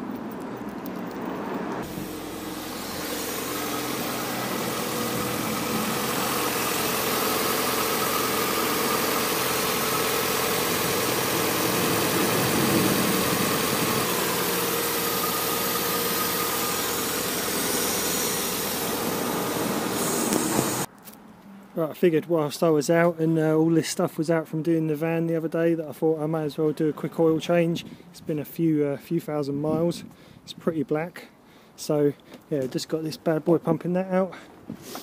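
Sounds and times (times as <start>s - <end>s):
car engine idling: 0.6s - 20.9s.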